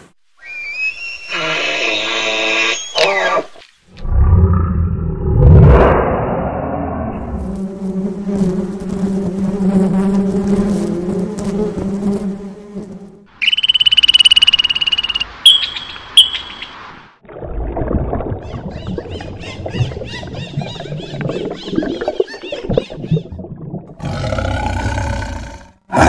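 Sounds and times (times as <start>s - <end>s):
honeybees buzzing: 7.2s - 14.0s
short high chirps: 13.4s - 16.7s.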